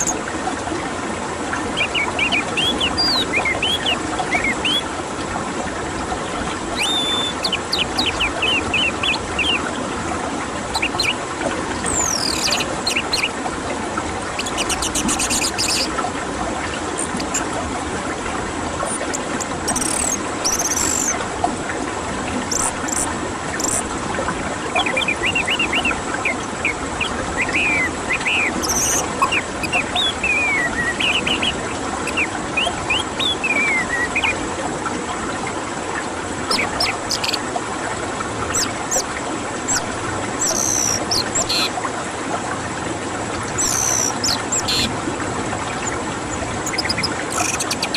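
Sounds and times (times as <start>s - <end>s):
bird whistling song: 1.8s - 4.9s, 6.7s - 9.7s, 10.7s - 11.2s, 11.8s - 13.3s, 14.4s - 15.9s, 17.0s - 17.4s, 18.9s - 21.2s, 22.5s - 23.9s, 24.8s - 34.4s, 36.5s - 37.4s, 38.5s - 39.0s, 39.7s - 41.7s, 43.6s - 44.9s, 46.6s - 47.9s
high chirps: 6.8s - 9.6s, 14.4s - 15.9s, 18.9s - 21.2s, 22.5s - 23.9s, 27.4s - 31.5s, 39.7s - 41.7s, 43.6s - 44.9s, 46.6s - 47.9s.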